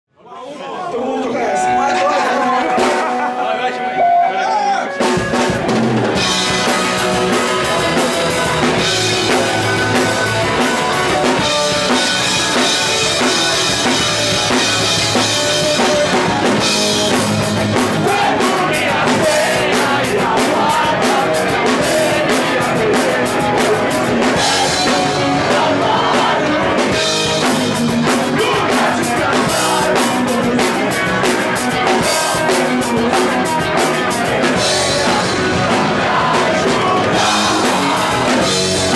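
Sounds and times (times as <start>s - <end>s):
punk rock band playing: 1.3s - 38.9s
distorted electric guitars: 1.5s - 38.9s
fast drum kit: 2.4s - 3.3s, 4.9s - 38.9s
person singing: 18.0s - 27.5s, 28.1s - 38.9s.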